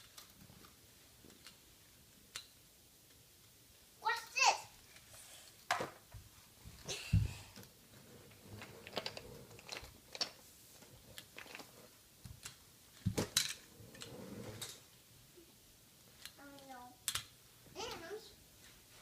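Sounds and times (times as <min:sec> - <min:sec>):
toy trucks clicking and knocking: 0:02.3 - 0:02.6, 0:08.4 - 0:10.4, 0:11.1 - 0:14.8, 0:17.0 - 0:17.3.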